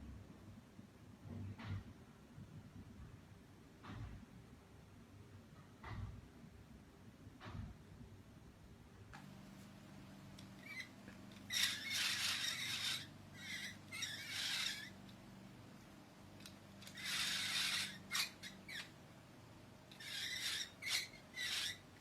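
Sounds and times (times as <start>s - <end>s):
bird squawking harshly: 11.5s - 15.0s, 20.0s - 22.0s.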